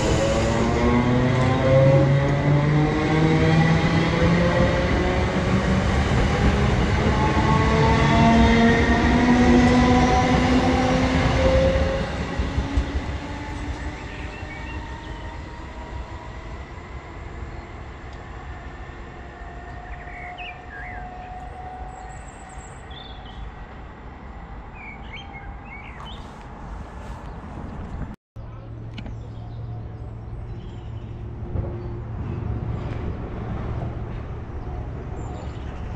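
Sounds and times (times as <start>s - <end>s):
train whine: 0.0s - 27.2s
train rumbling past: 0.0s - 28.2s, 29.6s - 35.9s.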